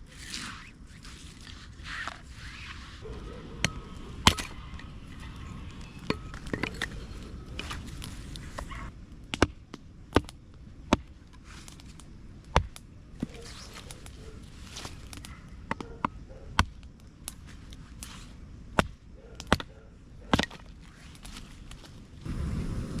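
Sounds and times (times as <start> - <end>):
wood being chopped: 3.6 - 4.6, 7.6 - 14.1, 14.8 - 17.4, 18.7 - 20.7.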